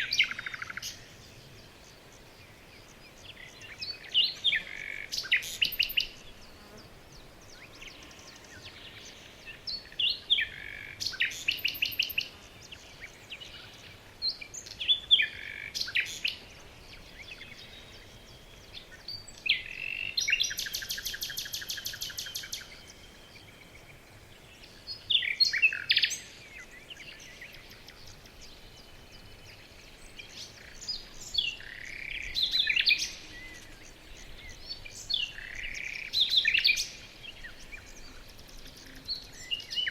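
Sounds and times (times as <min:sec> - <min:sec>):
songbirds chirping and whistling: 0:00.0 - 0:39.9.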